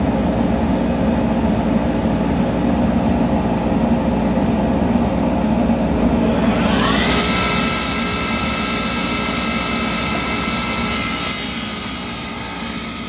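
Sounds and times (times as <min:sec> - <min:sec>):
machine droning: 0:04.2 - 0:13.0.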